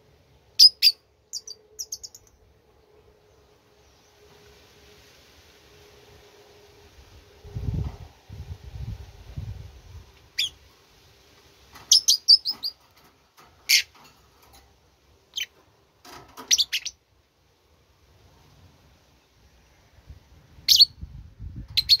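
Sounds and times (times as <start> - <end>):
bird chirping: 0.6 - 2.4, 10.4 - 10.6, 11.8 - 12.8, 16.4 - 17.0.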